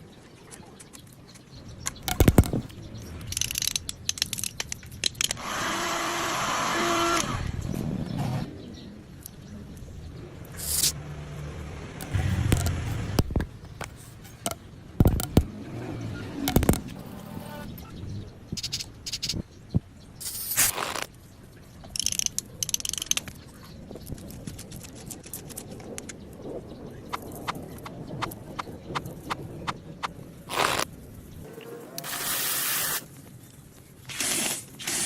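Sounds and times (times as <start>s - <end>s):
hard objects clicking and knocking: 1.4s - 2.7s, 3.3s - 5.4s, 12.0s - 15.5s, 16.4s - 17.1s
short hissing scrapes: 10.6s - 11.0s.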